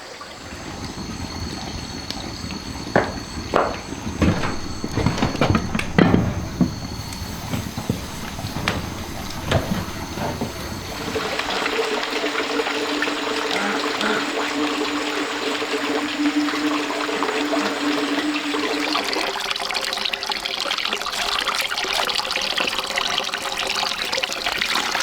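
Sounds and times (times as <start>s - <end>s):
scattered knocks and thuds: 1.0s - 11.6s.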